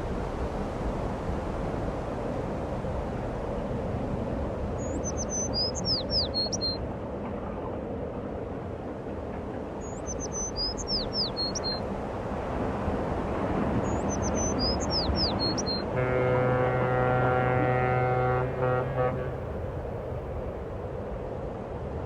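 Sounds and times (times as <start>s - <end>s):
songbird singing: 4.8s - 6.8s, 9.8s - 11.8s, 13.8s - 19.5s
low background rumble: 15.9s - 20.4s.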